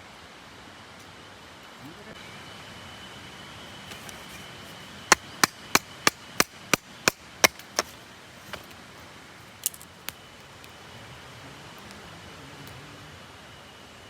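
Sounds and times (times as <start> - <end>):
wood being chopped: 5.1 - 8.7.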